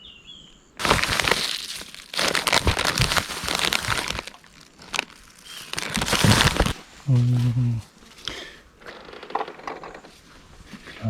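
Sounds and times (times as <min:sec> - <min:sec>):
cooler bag fabric rustling: 0:00.8 - 0:08.3.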